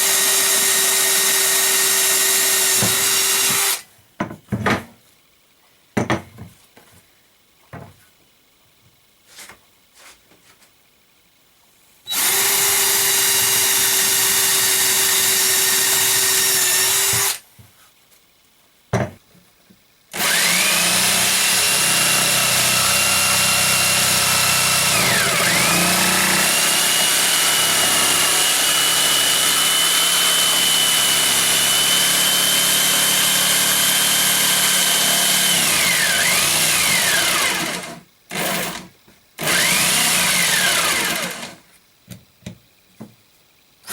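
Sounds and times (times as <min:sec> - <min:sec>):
power tool working wood: 0:00.0 - 0:03.8, 0:12.1 - 0:17.4, 0:20.2 - 0:41.6.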